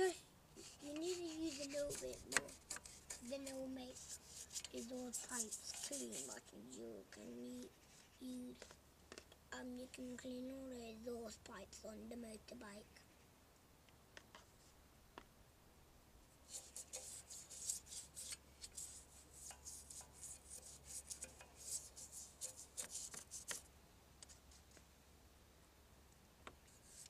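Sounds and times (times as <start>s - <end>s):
toothbrush scrubbing metal pipe: 0.6s - 6.4s, 16.5s - 23.6s.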